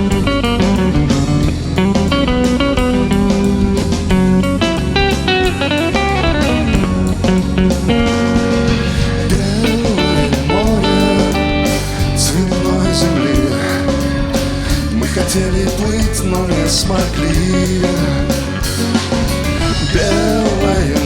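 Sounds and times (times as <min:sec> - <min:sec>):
bass and drums: 0:00.0 - 0:21.0
electric guitar lead with bends: 0:00.0 - 0:21.0.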